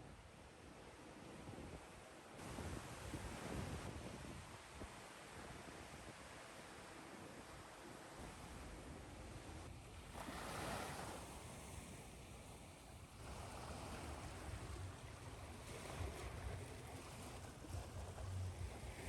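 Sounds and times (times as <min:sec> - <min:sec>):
ocean surf washing: 0:13.1 - 0:19.0.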